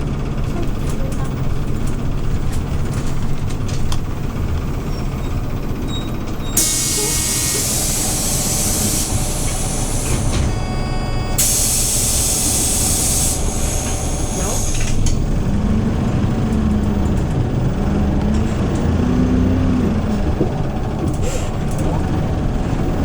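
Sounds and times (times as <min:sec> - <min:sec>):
bus engine drone: 0:00.0 - 0:23.0
compressed air hiss: 0:06.6 - 0:10.5, 0:11.4 - 0:15.0.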